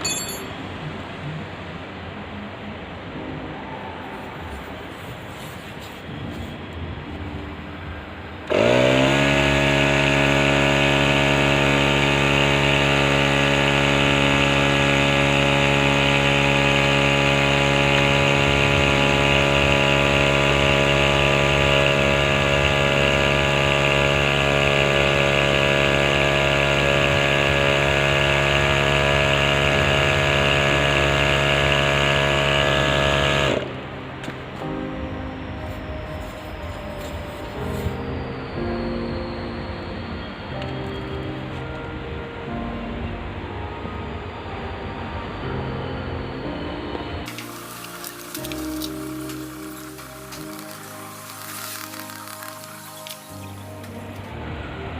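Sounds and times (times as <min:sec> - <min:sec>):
machine motor running: 0:08.4 - 0:33.8, 0:47.2 - 0:54.6.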